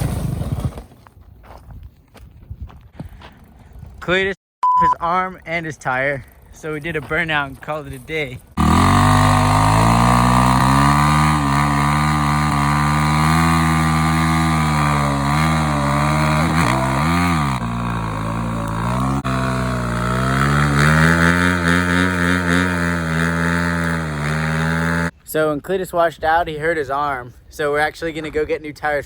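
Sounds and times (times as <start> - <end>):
motorcycle engine revving high: 8.6 - 25.1.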